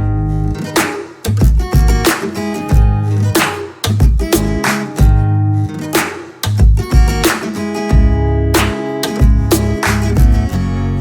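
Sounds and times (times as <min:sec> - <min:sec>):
bass notes: 0:00.0 - 0:00.6, 0:01.3 - 0:02.1, 0:02.7 - 0:05.7, 0:06.5 - 0:07.3, 0:07.9 - 0:11.0
strummed acoustic guitar: 0:00.0 - 0:11.0
steady beat: 0:00.8 - 0:05.4, 0:06.0 - 0:10.5.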